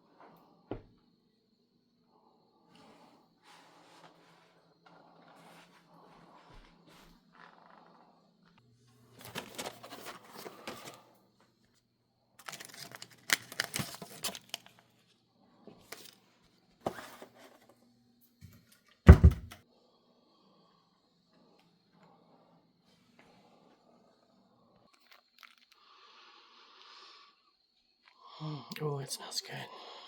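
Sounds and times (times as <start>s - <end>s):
clattering and rustling: 9.2s - 11.1s
loud thump: 19.1s - 19.6s.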